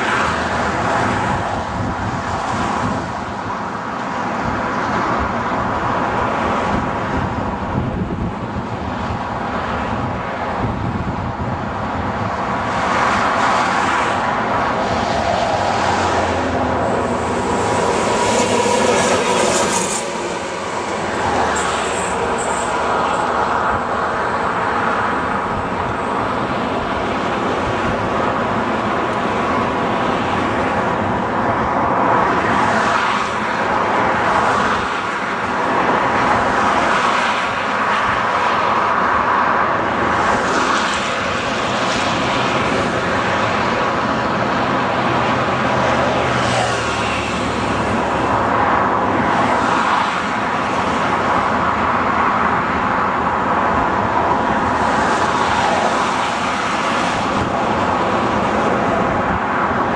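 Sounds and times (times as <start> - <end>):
continuous rushing noise: 0.0 - 59.9
electric locomotive hum: 14.4 - 32.0.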